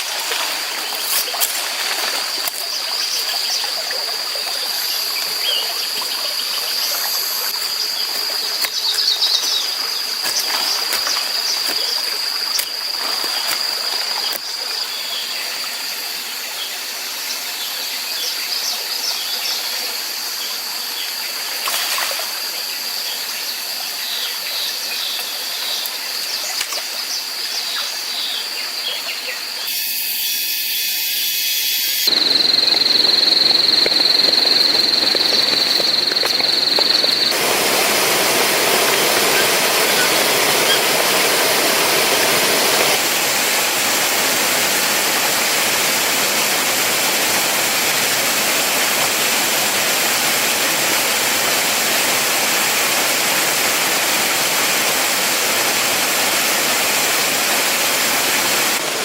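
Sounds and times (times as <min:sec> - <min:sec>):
steady high whine: 0:29.6 - 0:51.8
waterfall rushing: 0:32.1 - 0:59.0.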